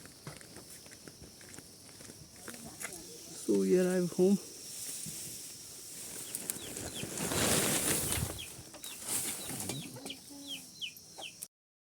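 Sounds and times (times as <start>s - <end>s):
wings flapping and rustling: 5.9s - 10.2s
chickens clucking: 6.0s - 11.5s
chicks peeping: 6.1s - 11.4s.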